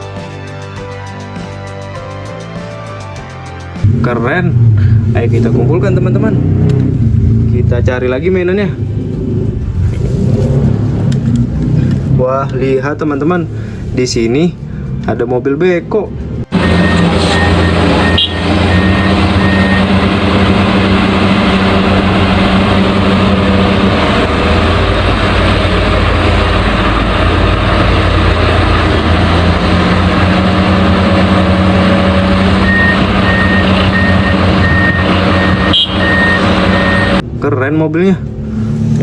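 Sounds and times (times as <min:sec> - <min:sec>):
heavy vehicle engine running: 0:03.7 - 0:14.0, 0:16.1 - 0:37.4
reversing alarm beeping: 0:16.5 - 0:21.8, 0:32.5 - 0:37.2.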